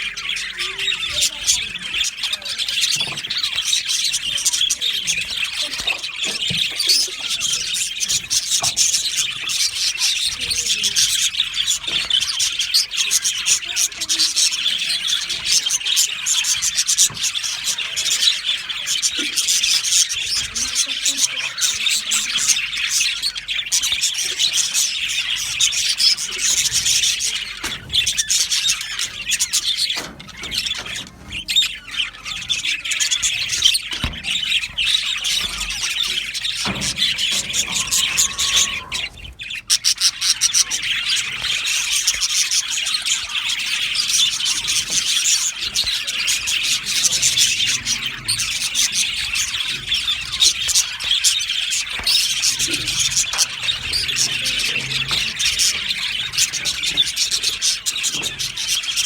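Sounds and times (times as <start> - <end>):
budgerigars chattering: 0.0 - 59.0.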